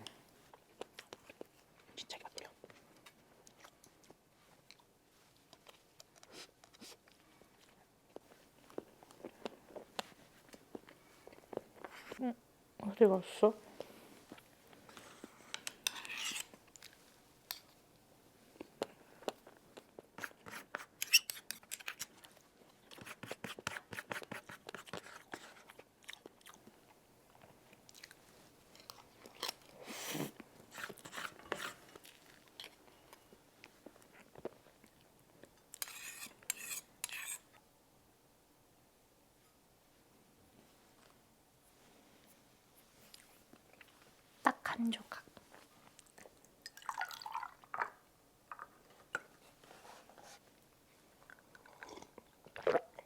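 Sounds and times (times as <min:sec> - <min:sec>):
person chewing: 0:51.2 - 0:53.0.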